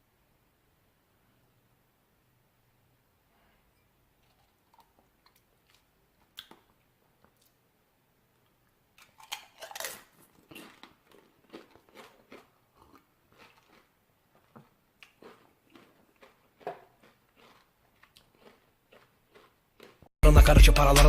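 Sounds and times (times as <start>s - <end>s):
faint clicks and crunchy noises: 3.4s - 7.7s, 8.3s - 20.1s.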